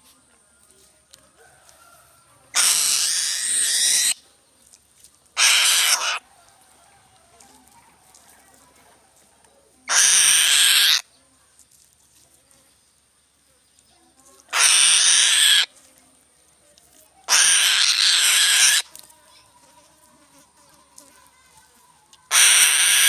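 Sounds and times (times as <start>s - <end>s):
bird of prey screeching: 2.6s - 4.2s, 5.4s - 6.2s, 9.9s - 11.0s, 14.5s - 15.7s, 17.3s - 18.9s, 22.3s - 23.0s.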